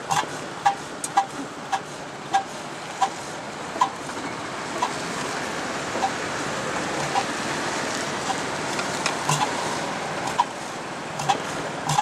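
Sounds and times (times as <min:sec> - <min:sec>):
engine exhaust beats: 0:00.0 - 0:12.0
steady rushing noise: 0:00.0 - 0:12.0.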